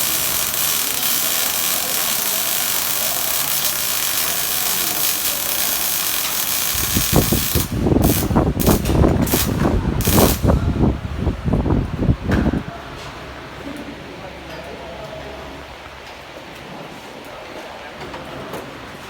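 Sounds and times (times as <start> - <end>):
arc welding hiss and crackle: 0.0 - 10.6.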